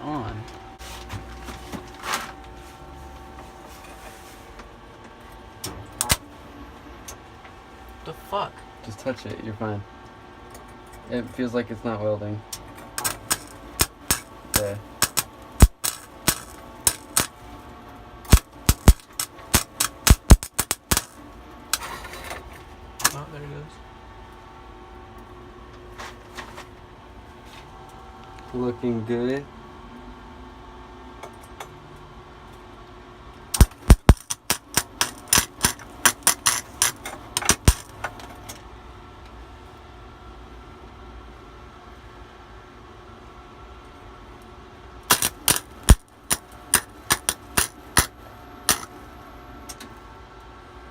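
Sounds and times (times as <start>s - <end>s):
welder arc popping: 6.0s - 6.3s, 13.0s - 17.4s, 18.2s - 21.8s, 33.6s - 38.1s, 45.1s - 48.1s, 48.7s - 48.9s.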